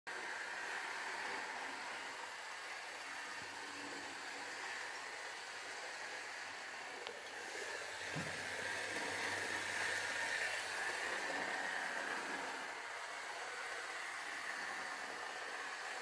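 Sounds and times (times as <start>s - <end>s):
model train motor whirring: 0.1s - 16.0s.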